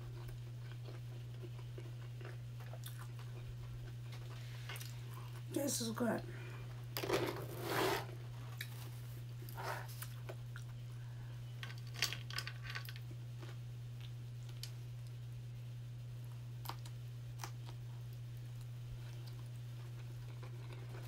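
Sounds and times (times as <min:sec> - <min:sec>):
person chewing with wet mouth sounds: 0:00.0 - 0:05.5, 0:09.4 - 0:11.0, 0:16.6 - 0:21.0.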